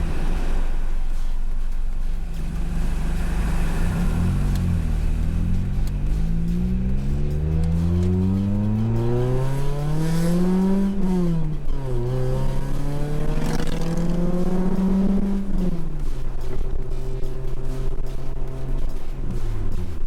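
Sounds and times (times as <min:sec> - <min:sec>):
car engine revving through gears: 0:00.0 - 0:20.0.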